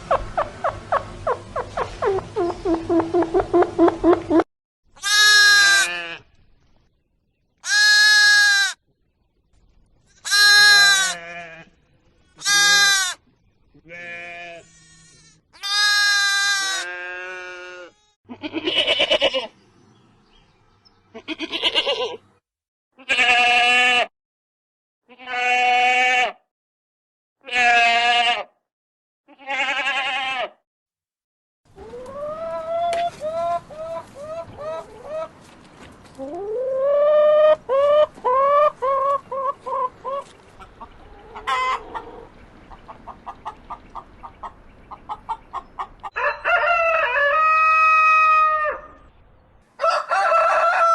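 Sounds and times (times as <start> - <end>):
animal bleating: 5.0 - 6.3, 7.6 - 8.8, 10.2 - 11.8, 12.4 - 13.2, 13.8 - 19.5, 21.1 - 22.2, 23.0 - 24.1, 25.1 - 26.4, 27.4 - 28.6, 29.3 - 30.6.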